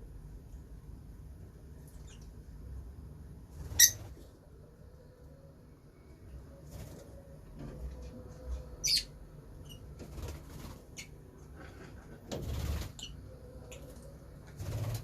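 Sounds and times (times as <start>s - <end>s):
lovebird chirps: 8.7s - 9.9s
wing flapping: 14.5s - 15.0s.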